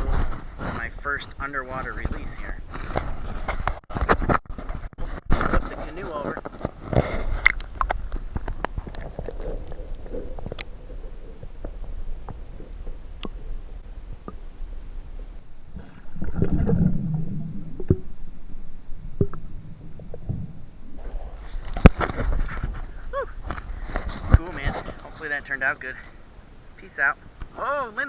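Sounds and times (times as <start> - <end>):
water sloshing and dripping: 0.0 - 15.4, 21.0 - 27.7
muffled underwater gurgling: 0.0 - 18.1, 21.0 - 28.0.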